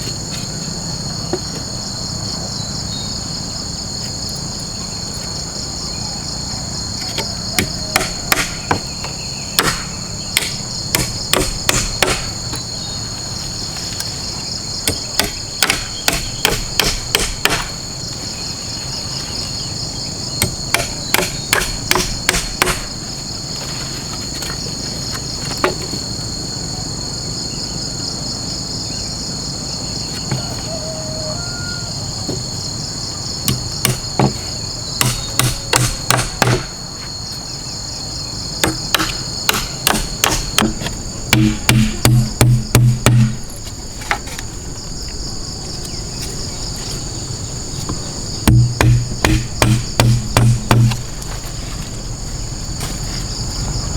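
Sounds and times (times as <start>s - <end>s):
insects droning: 0.0s - 53.9s
sharp hammer blows: 7.6s - 8.9s, 9.6s - 12.4s, 35.0s - 36.8s, 38.6s - 43.5s, 48.4s - 51.0s.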